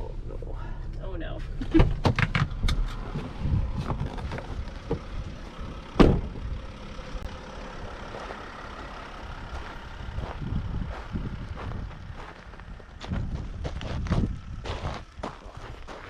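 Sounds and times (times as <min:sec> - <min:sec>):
van engine rumbling low: 0:00.0 - 0:16.0
knocks and rattles: 0:01.6 - 0:05.1
loud clunk: 0:06.0 - 0:06.4.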